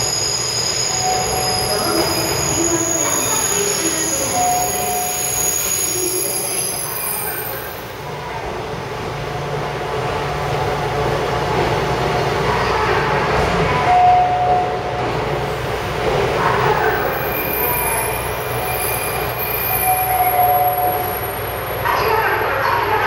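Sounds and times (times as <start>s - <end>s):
train brakes squealing: 0.0s - 8.1s, 16.6s - 21.9s.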